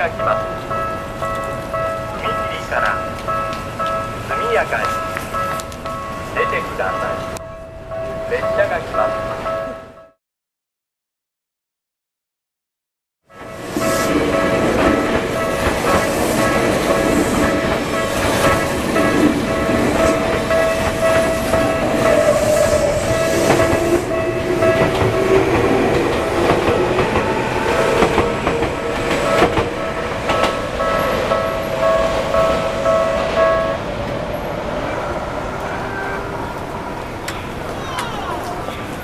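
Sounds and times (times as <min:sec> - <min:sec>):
crossing warning bell ringing: 0:00.0 - 0:10.2, 0:13.3 - 0:38.1
train wheels clacking over rails: 0:13.4 - 0:33.5.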